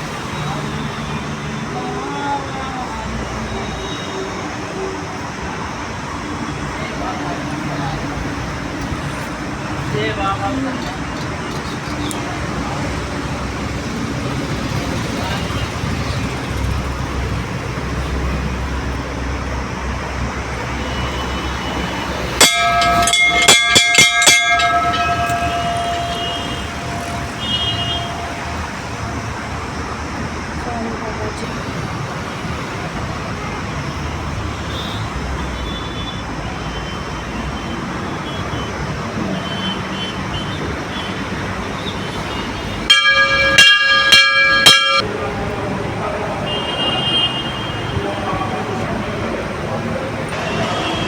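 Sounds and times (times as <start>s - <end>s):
low rumble of traffic: 0.0s - 51.0s
metal temple bell ringing: 20.6s - 30.1s, 42.3s - 45.4s.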